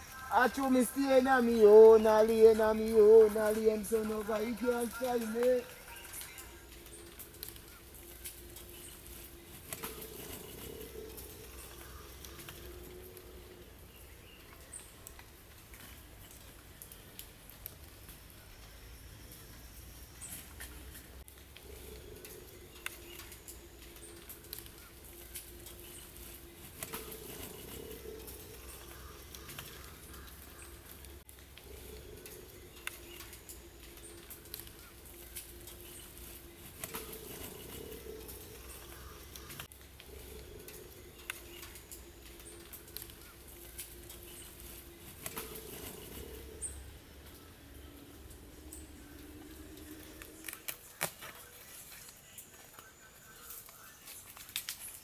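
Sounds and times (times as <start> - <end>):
rain drops tapping: 0.0 - 8.7
low hum: 0.0 - 51.0
raindrops pattering: 0.0 - 55.0.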